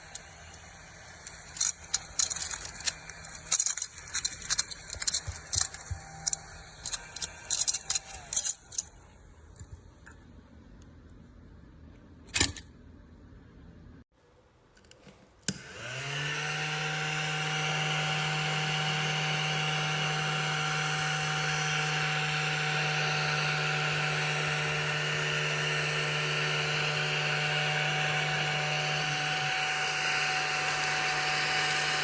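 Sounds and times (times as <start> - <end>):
vacuum motor humming and whining: 0.0 - 8.4, 15.5 - 32.0.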